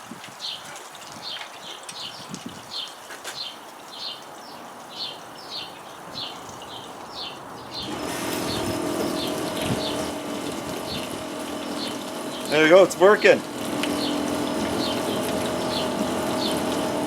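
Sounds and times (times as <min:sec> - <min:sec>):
water rushing: 0:00.0 - 0:17.0
bird chirping: 0:02.8 - 0:10.2, 0:11.7 - 0:12.6, 0:13.9 - 0:16.7
dishwasher motor humming: 0:07.8 - 0:17.0.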